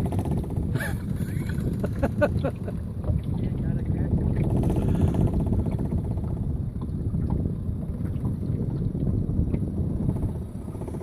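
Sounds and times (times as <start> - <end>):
boat engine rumble: 0.0 - 11.0
wind buffeting microphone: 0.0 - 11.0.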